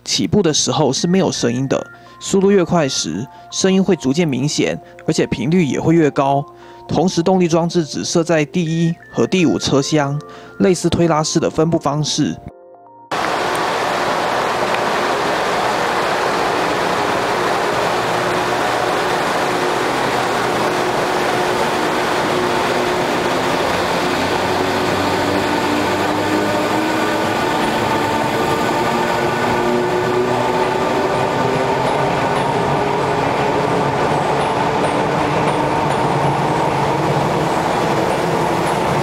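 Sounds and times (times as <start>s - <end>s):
electric train motor hum: 13.1s - 39.0s
rail and wheel noise: 13.1s - 39.0s.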